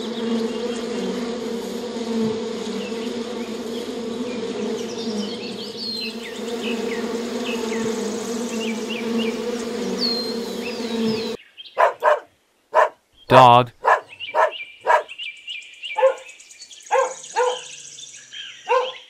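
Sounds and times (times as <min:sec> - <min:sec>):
bees buzzing: 0:00.0 - 0:11.4
birds chirping: 0:02.6 - 0:19.0.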